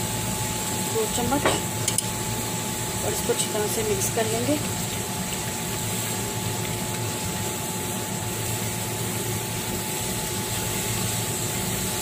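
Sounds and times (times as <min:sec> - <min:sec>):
meat and onions sizzling in pan: 0:00.0 - 0:12.0
spatula stirring: 0:04.6 - 0:12.0.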